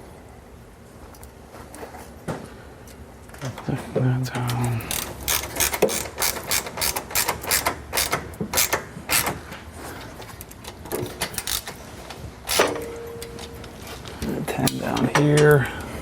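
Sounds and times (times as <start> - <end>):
ratchet wrench clicking: 4.8 - 9.4, 11.2 - 11.8, 12.4 - 12.7.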